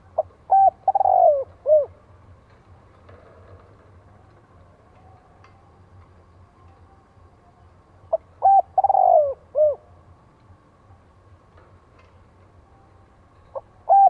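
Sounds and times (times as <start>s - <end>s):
dove cooing: 0.0s - 2.0s, 8.1s - 10.0s, 13.5s - 14.0s.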